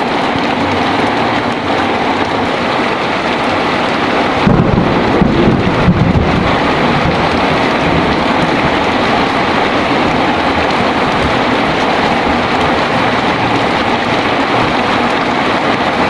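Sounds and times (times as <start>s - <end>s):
heavy rain falling: 0.0s - 16.0s
thunder rolling: 1.8s - 16.0s.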